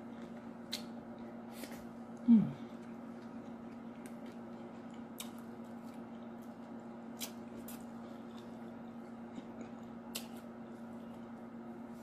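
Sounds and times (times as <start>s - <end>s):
steady low hum: 0.0s - 12.0s
chewing crunches: 0.1s - 10.9s.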